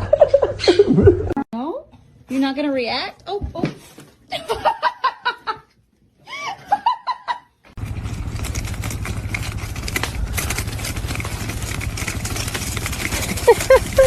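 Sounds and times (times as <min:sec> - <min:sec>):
person laughing: 0:00.0 - 0:01.4, 0:13.2 - 0:14.0
rough low rumbling: 0:07.8 - 0:14.0.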